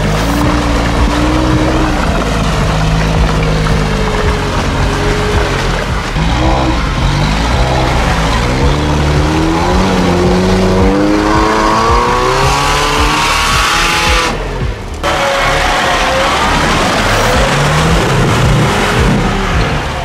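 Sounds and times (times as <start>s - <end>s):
off-road vehicle engine revving: 0.0s - 20.0s.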